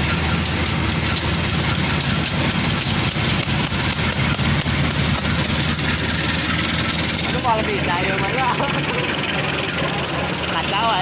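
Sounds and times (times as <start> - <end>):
diesel train engine drone: 0.0 - 11.0
wheels clacking over rail joints: 0.0 - 11.0.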